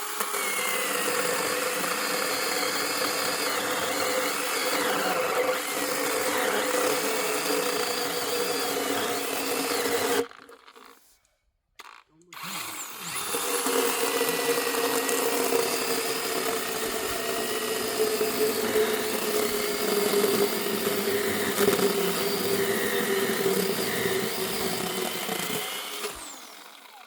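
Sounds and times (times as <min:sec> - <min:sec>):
motor running steadily: 0:12.4 - 0:27.0.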